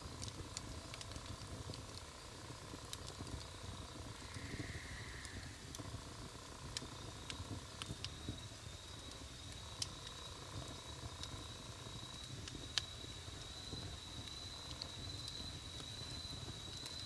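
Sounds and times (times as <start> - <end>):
burning wood crackling and popping: 0.0 - 17.0
low rumble of flames: 0.0 - 17.0
faint high whistle: 4.1 - 6.1.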